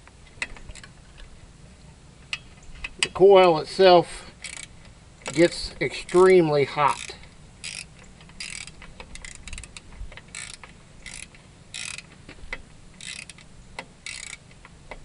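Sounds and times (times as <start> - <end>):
tools clicking: 4.4 - 6.3, 6.9 - 15.0
ratchet wrench clicking: 4.4 - 15.0.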